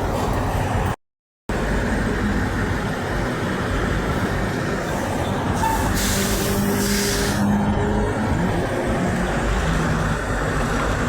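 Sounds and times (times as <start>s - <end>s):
heavy trucks passing: 0.0s - 11.0s
hiss: 5.9s - 7.4s.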